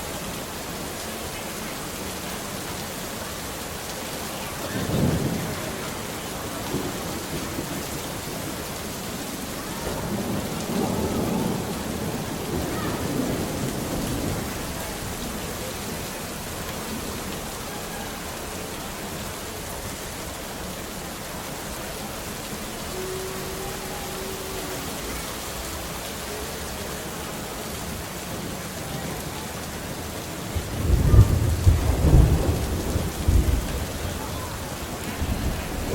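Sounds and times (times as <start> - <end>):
steady rain falling: 0.0 - 35.9
rolling thunder: 4.6 - 15.7, 28.1 - 35.9.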